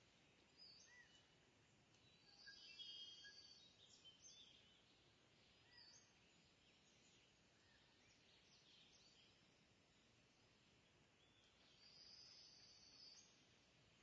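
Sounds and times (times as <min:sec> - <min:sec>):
short whistled bird calls: 0:00.6 - 0:01.2, 0:02.1 - 0:04.4.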